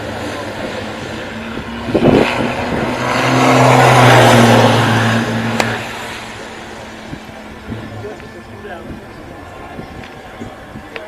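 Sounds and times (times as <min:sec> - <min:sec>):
racing engine passing by: 0:00.0 - 0:11.0.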